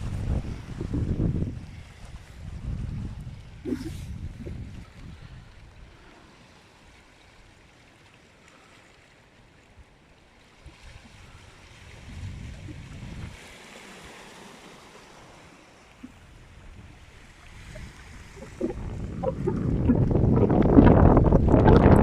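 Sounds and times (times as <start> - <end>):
wind buffeting microphone: 0.0 - 5.8, 10.9 - 13.5, 16.1 - 22.0
waves washing on shore: 0.0 - 22.0.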